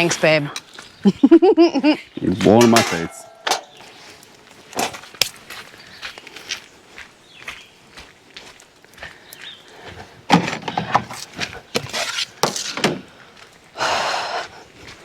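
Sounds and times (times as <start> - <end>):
knocks and handling clatter: 2.4 - 3.9, 10.0 - 13.1.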